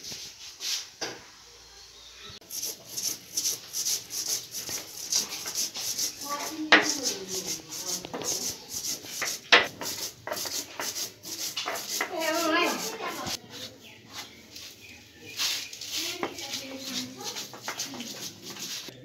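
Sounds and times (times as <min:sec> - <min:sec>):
stone scraping on stone: 0:02.5 - 0:13.7, 0:15.4 - 0:18.9.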